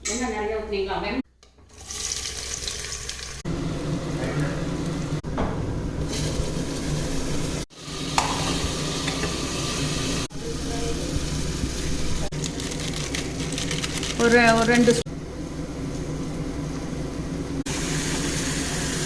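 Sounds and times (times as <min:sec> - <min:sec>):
food sizzling in hot oil: 0:01.7 - 0:03.4, 0:06.0 - 0:16.8, 0:17.5 - 0:19.0.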